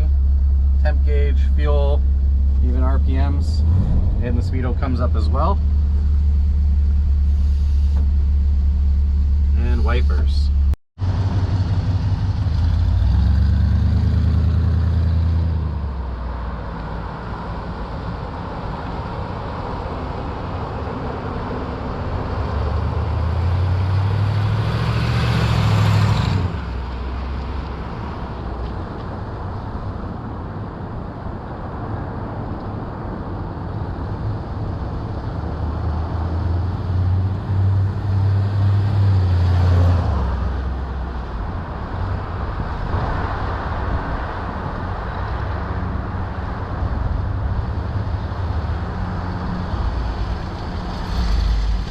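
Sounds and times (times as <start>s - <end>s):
car engine running: 0.0s - 13.4s.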